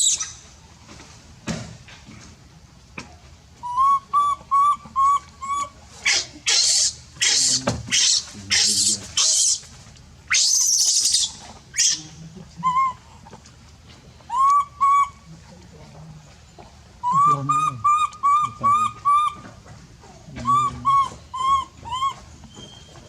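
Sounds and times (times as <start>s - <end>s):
baby monkey chirping peeps: 0.0s - 0.4s, 3.6s - 9.7s, 10.3s - 13.0s, 14.3s - 15.3s, 17.0s - 19.5s, 20.4s - 23.0s.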